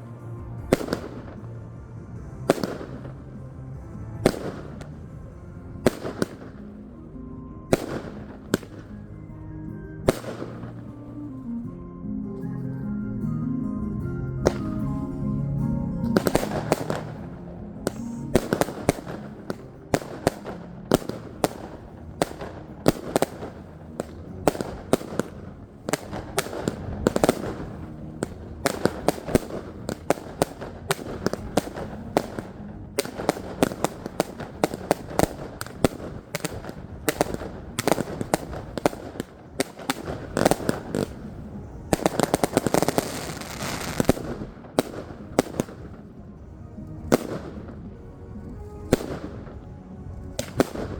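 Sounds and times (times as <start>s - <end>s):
firework crackling: 0.0s - 11.7s, 14.4s - 50.9s
firework shots and bangs: 0.4s - 7.0s, 7.6s - 9.3s, 10.1s - 11.0s, 14.4s - 14.8s, 16.0s - 47.9s, 48.9s - 50.9s.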